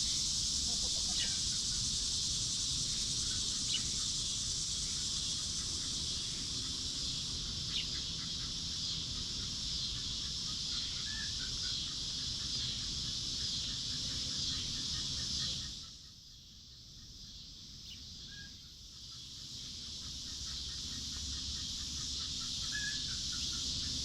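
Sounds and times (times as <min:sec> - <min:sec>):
soft chirping calls: 0:00.0 - 0:16.1, 0:17.0 - 0:24.0
high-pitched insect drone: 0:00.0 - 0:24.0
bird chirps: 0:20.4 - 0:24.0.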